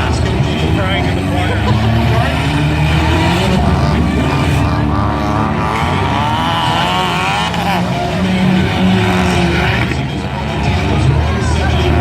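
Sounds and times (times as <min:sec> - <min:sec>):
vehicle engines revving: 0:00.0 - 0:12.0.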